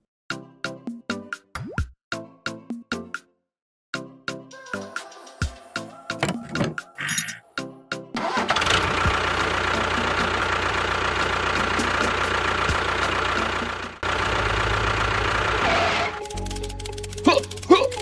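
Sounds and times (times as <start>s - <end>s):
engine idling: 8.2s - 18.0s.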